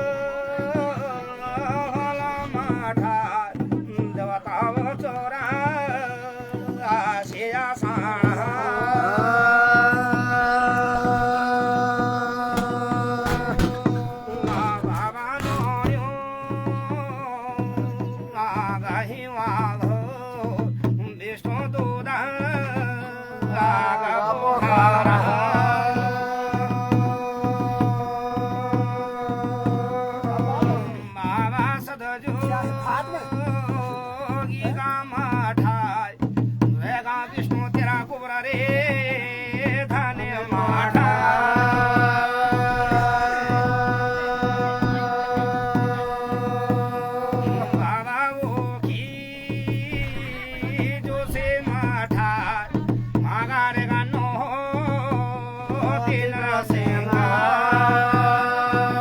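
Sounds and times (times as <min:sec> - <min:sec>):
drum rhythm: 0:00.0 - 0:59.0
person singing: 0:05.5 - 0:20.7, 0:39.3 - 0:59.0.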